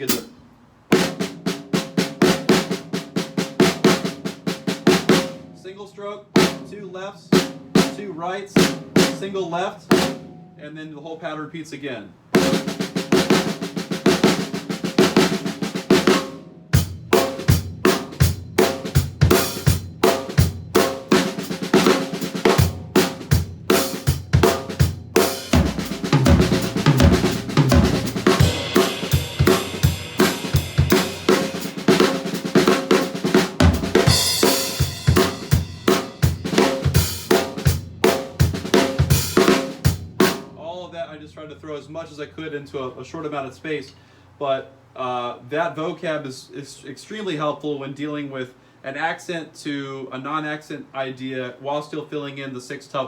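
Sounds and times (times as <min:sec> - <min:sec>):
snare drum rolls: 0:00.0 - 0:05.4, 0:12.4 - 0:40.6
bass drum groove: 0:12.4 - 0:40.6
cymbal crashes: 0:25.2 - 0:32.3, 0:33.8 - 0:36.4.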